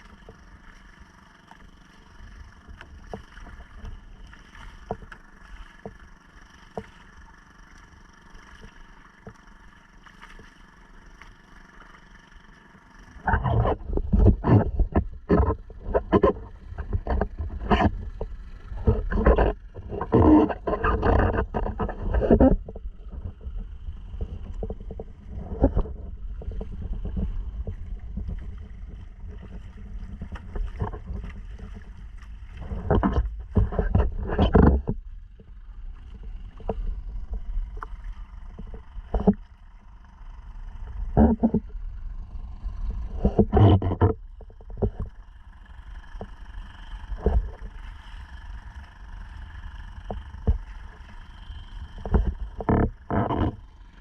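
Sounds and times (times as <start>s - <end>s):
buffeting and splashing: 0.0s - 54.0s
outboard motor running: 0.0s - 54.0s.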